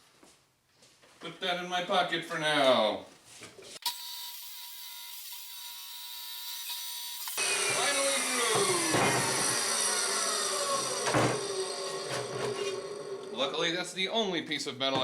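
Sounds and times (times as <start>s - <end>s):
electric saw cutting steel: 3.8s - 13.7s.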